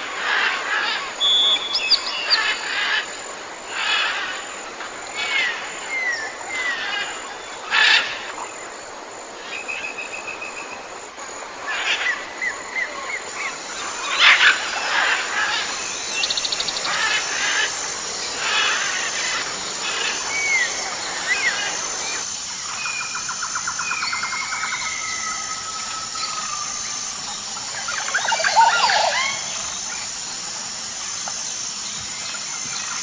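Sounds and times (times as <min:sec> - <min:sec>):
bird trill: 0:00.4 - 0:03.0
harsh bird calls: 0:11.7 - 0:30.1.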